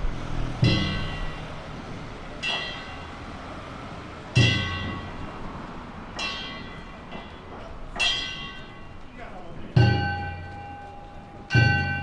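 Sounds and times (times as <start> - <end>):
metal gong strikes: 0.6 - 1.5
low drum beat: 9.4 - 12.0.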